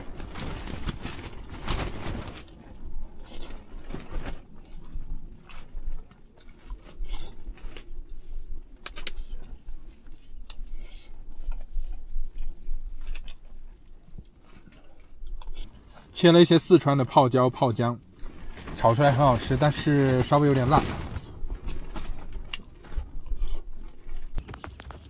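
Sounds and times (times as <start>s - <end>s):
person chewing: 4.6s - 16.1s, 22.4s - 24.3s.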